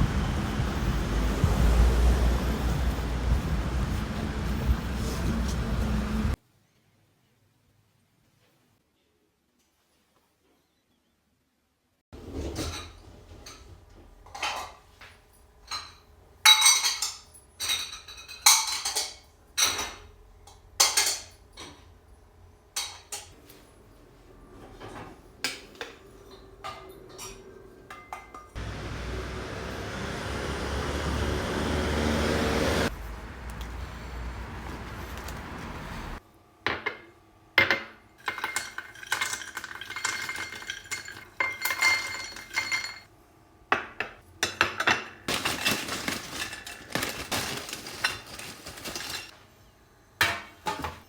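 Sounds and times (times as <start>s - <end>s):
dishes and utensils clinking: 12.2s - 21.9s, 22.7s - 23.6s, 24.7s - 28.6s, 36.7s - 43.1s, 43.8s - 49.3s.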